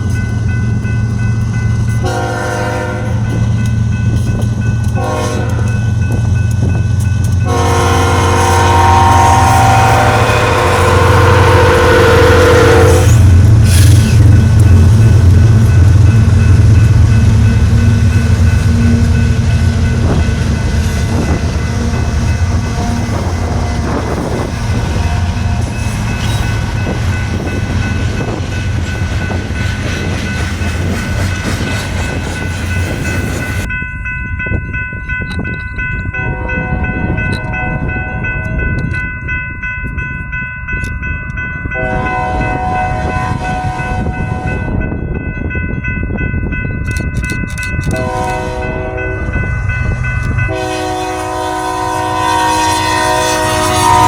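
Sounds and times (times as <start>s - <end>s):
locomotive rumble: 0.0s - 54.0s
high train horn tones: 2.0s - 3.3s, 5.0s - 5.8s, 7.4s - 14.0s, 21.1s - 26.5s, 36.2s - 38.7s, 41.8s - 44.8s, 47.9s - 49.4s, 50.5s - 54.0s
train rolling hiss: 12.3s - 14.6s.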